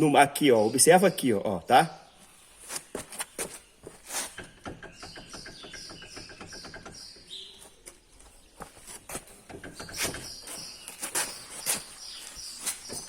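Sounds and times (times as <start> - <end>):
bird singing whistled notes: 4.8 - 7.8, 9.7 - 13.0.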